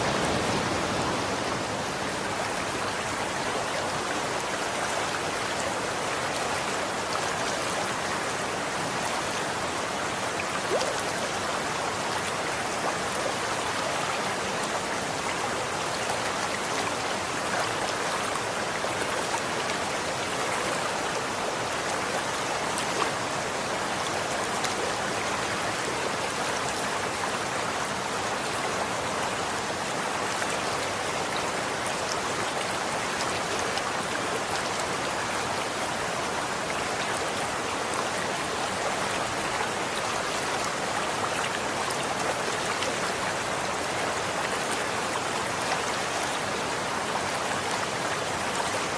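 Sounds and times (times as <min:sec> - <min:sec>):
running water flowing: 0:00.0 - 0:48.9.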